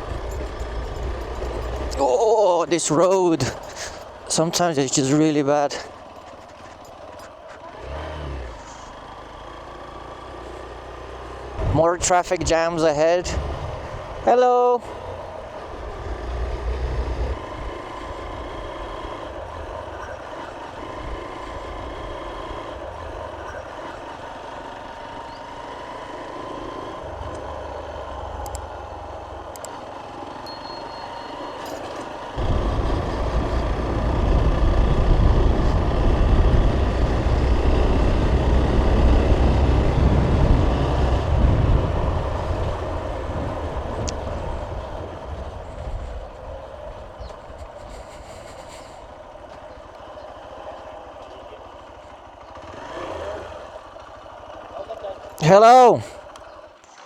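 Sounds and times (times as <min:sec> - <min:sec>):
motorcycle riding on rough road: 0:00.0 - 0:57.0
loud low rumble: 0:32.4 - 0:45.4.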